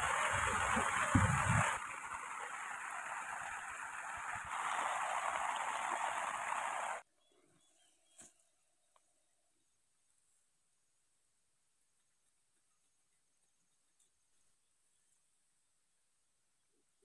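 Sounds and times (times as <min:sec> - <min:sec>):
heavy rain on puddles: 0:00.0 - 0:07.0.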